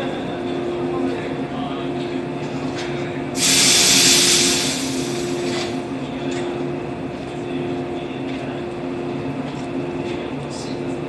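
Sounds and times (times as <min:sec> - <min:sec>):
hiss of air: 0:03.4 - 0:05.6
electric train humming: 0:03.4 - 0:06.0.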